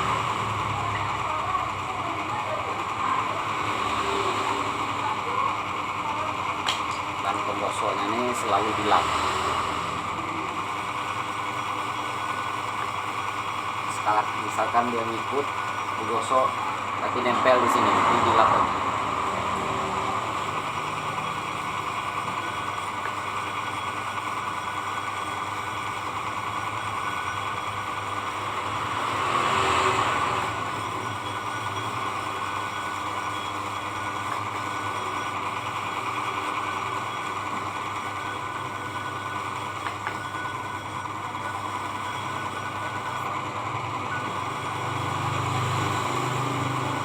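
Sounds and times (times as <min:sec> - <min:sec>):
blade rasping on disc: 0:00.0 - 0:47.0
sharpening machine running: 0:00.0 - 0:47.0.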